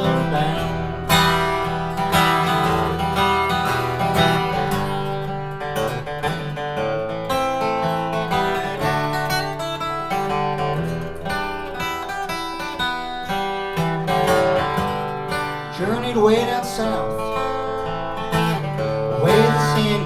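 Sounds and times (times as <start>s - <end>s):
bass: 0.0s - 9.8s
acoustic guitar strumming and picking: 0.0s - 20.0s.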